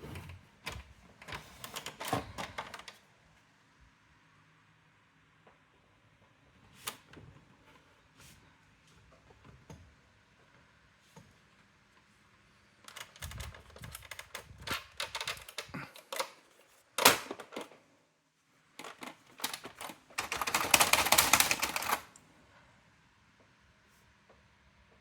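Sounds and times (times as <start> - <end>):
typewriter clacking strikes: 19.4 - 22.0.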